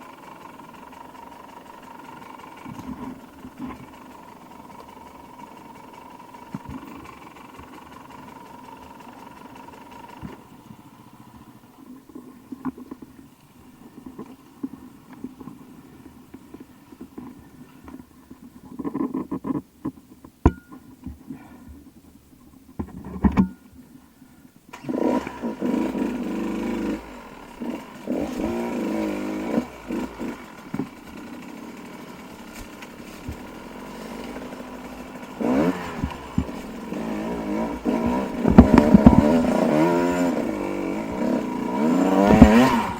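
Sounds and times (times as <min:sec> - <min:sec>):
dirt bike engine running: 0:00.0 - 0:13.0, 0:24.7 - 0:42.9
sharp knocks and clicks: 0:18.7 - 0:21.2, 0:22.7 - 0:23.6, 0:37.9 - 0:39.7, 0:42.2 - 0:42.9
loud engine revving: 0:24.8 - 0:30.7, 0:33.0 - 0:42.9.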